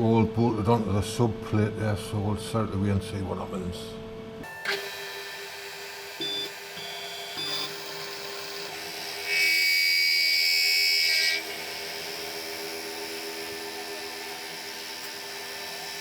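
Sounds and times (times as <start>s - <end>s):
loud high-pitched whine: 4.4s - 16.0s
milling machine humming: 4.4s - 16.0s.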